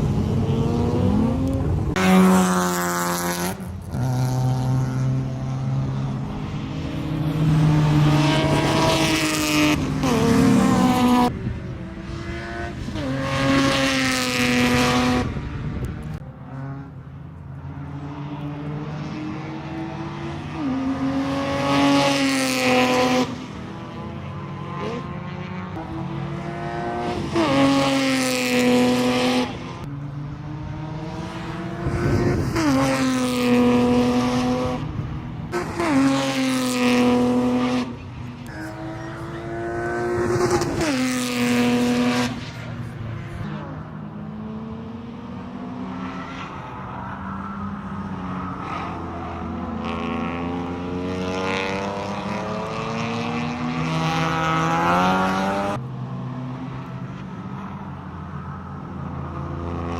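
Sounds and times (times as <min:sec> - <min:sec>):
race car engine revving: 0:00.0 - 0:17.1, 0:17.7 - 0:57.0.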